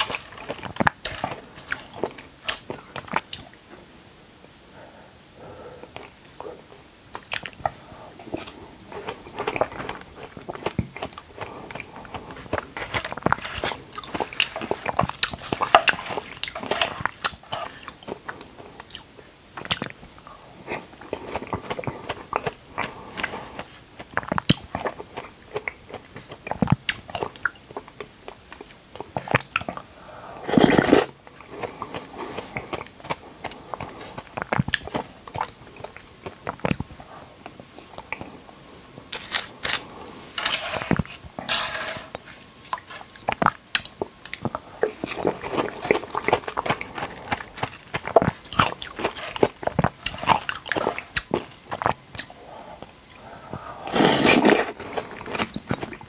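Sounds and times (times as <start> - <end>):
wet chewing and mouth clicks: 7.1 - 20.0, 20.7 - 29.9, 30.6 - 38.4, 42.1 - 53.3, 53.9 - 56.0.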